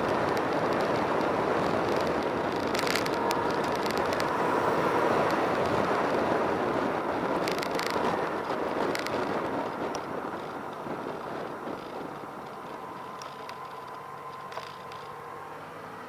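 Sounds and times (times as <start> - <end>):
rushing vehicle noise: 0.0 - 16.0.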